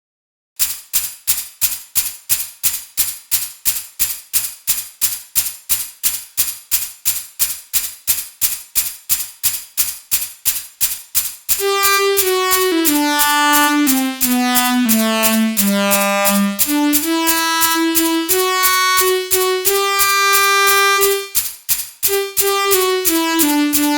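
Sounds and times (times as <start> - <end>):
held synth tone stepping down: 11.6 - 21.3.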